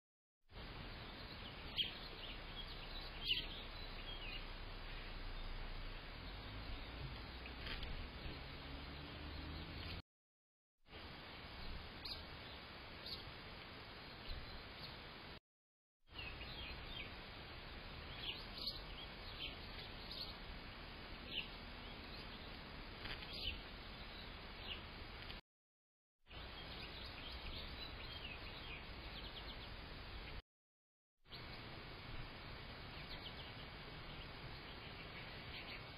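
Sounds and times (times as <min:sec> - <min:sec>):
microphone hiss: 0:00.6 - 0:10.0, 0:10.9 - 0:15.4, 0:16.2 - 0:25.4, 0:31.3 - 0:35.9
songbirds chirping: 0:00.6 - 0:10.0, 0:11.0 - 0:15.3, 0:16.1 - 0:25.4, 0:26.3 - 0:30.4, 0:31.3 - 0:35.9
steady hiss: 0:31.3 - 0:35.9.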